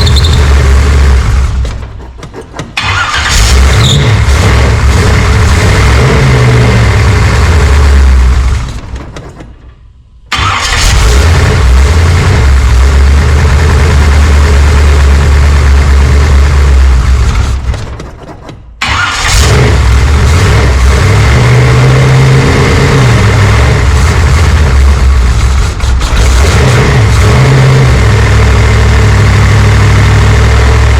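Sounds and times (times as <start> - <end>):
vehicle engine running loudly: 0.0 - 1.7, 10.8 - 17.5, 19.3 - 30.9.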